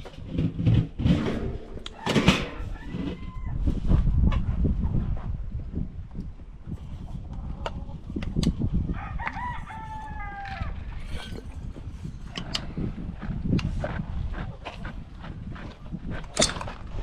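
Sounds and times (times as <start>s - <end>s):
low rumble: 0.9s - 6.6s
rooster crowing: 1.9s - 3.6s, 8.9s - 10.8s.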